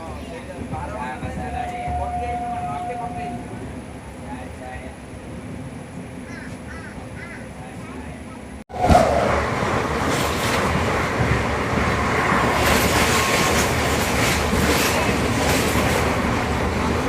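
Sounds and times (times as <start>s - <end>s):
train wheels rumbling on rails: 0.0s - 17.0s
train wheels clattering: 8.9s - 17.0s.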